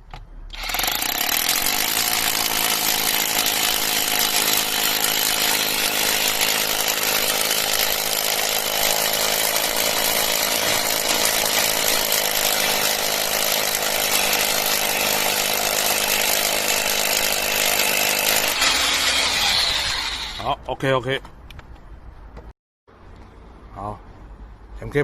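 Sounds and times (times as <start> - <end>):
rotary hammer drilling into concrete: 0.5 - 20.5.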